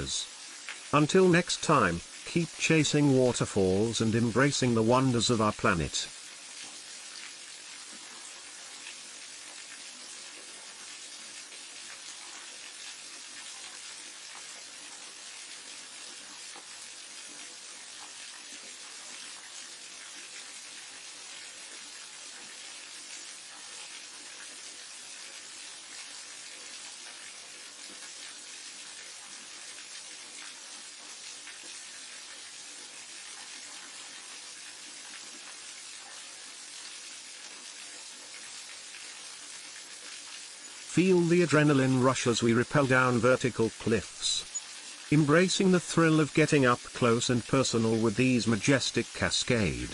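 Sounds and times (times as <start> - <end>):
waterfall hissing: 0.0 - 6.1, 40.3 - 49.9.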